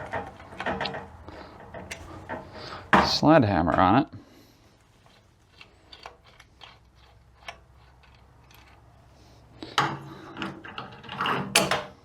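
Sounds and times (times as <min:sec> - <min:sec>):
metal clatter and scrape: 0:00.0 - 0:03.1, 0:05.0 - 0:11.9
tools and metal parts clicking: 0:05.5 - 0:09.0.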